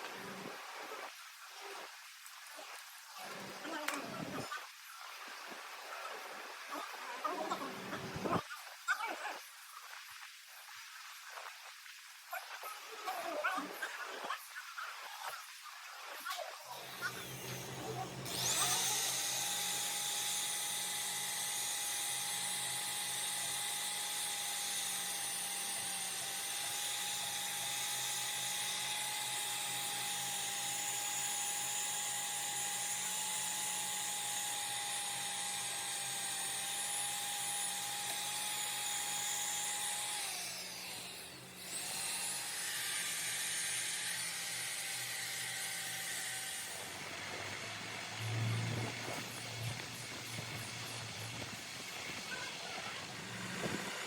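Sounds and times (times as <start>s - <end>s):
electric power tool whining: 16.7s - 54.0s.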